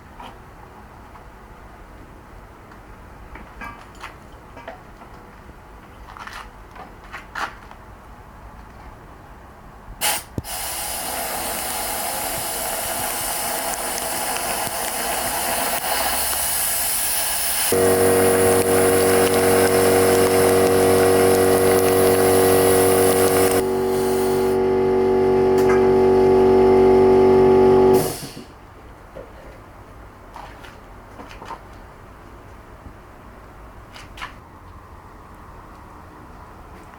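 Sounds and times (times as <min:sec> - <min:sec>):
steady hum: 0:10.0 - 0:28.2
tap water running into sink: 0:10.4 - 0:23.9.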